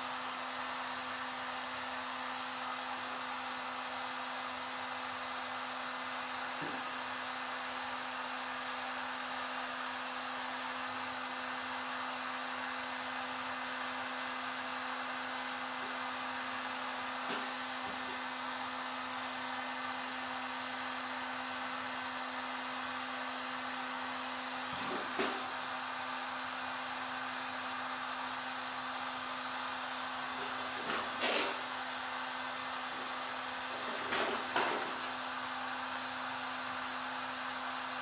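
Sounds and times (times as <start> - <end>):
heat gun blowing: 30.2 - 32.0.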